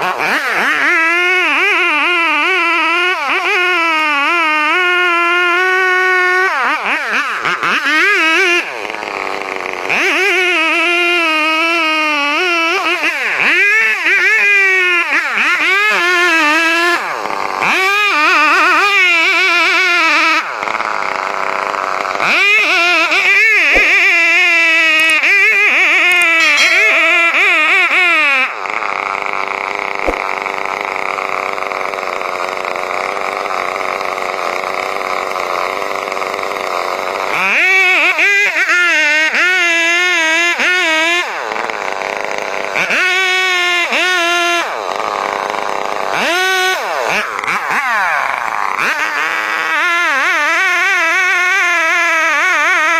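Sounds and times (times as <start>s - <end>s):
chainsaw engine cutting: 0.0s - 52.9s.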